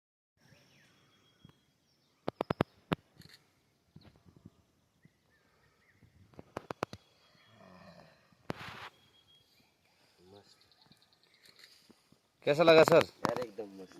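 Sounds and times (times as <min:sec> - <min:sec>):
faint bird chirps: 0:00.4 - 0:12.6.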